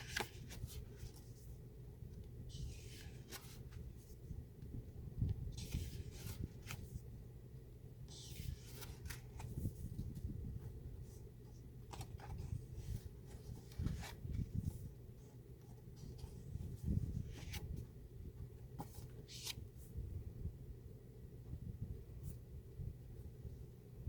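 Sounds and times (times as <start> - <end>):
paper cards rustling: 0.0 - 1.6, 2.5 - 4.2, 5.6 - 7.0, 8.1 - 10.3, 11.8 - 14.9, 18.4 - 19.7.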